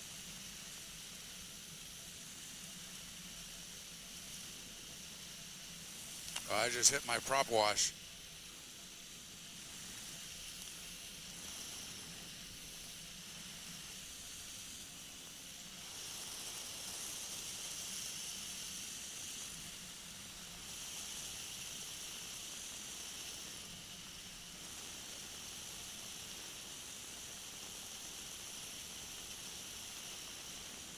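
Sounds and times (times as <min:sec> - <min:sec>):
airflow hiss: 0:00.0 - 0:30.9
microlight engine noise: 0:00.1 - 0:30.9.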